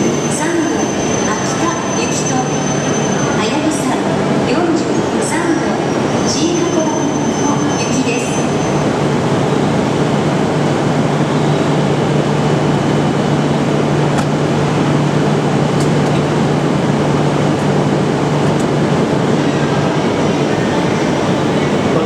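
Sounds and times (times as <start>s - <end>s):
faint brake squeal: 0.0s - 3.6s, 6.1s - 8.9s.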